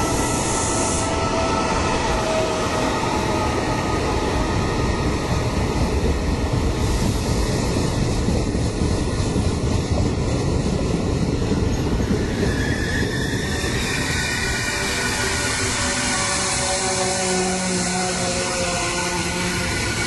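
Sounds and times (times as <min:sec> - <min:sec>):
train wheels rumbling on rails: 0:00.0 - 0:20.0
wheel squeal: 0:11.7 - 0:16.4.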